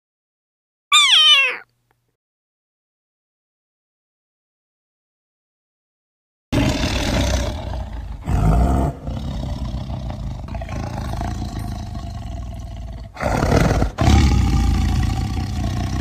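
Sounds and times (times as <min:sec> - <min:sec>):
large animal roaring: 0:06.6 - 0:16.0.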